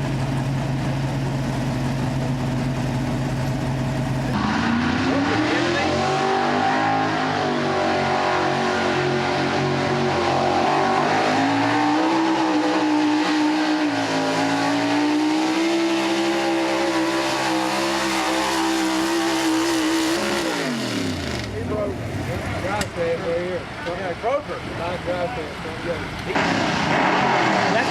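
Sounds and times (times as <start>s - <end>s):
truck engine at high revs: 0.0s - 27.9s.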